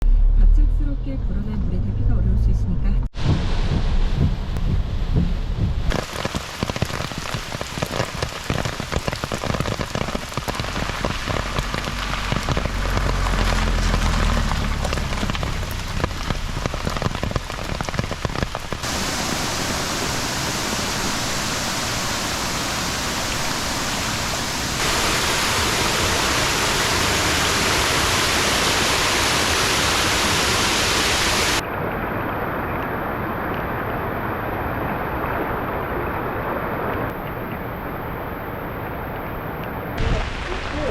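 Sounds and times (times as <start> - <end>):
low rumble: 0.0 - 6.0, 10.4 - 29.4
heavy rain pouring: 5.9 - 40.9.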